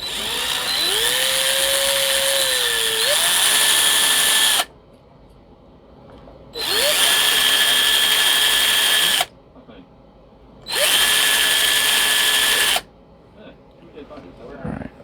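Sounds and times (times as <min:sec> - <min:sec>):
electric drill drilling wood: 0:00.0 - 0:04.7, 0:06.6 - 0:09.3, 0:10.7 - 0:12.8.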